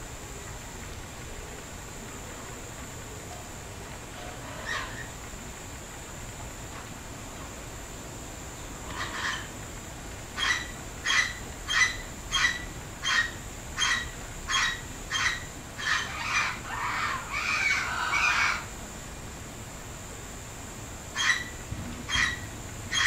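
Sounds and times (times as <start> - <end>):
bird squawking: 21.2 - 23.0.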